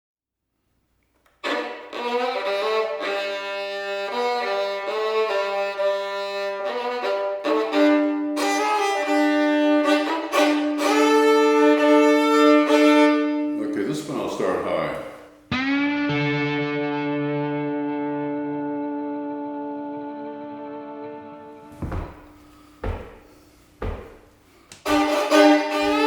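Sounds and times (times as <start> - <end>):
fiddle strings bowed in tuning: 1.4 - 14.9, 24.7 - 26.0.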